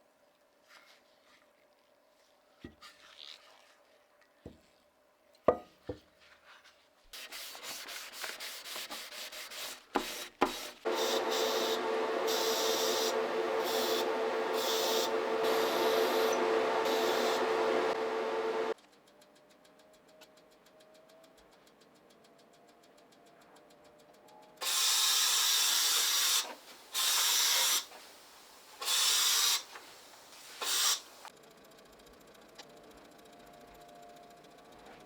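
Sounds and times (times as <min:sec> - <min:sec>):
small power tool sanding: 0:07.4 - 0:18.8.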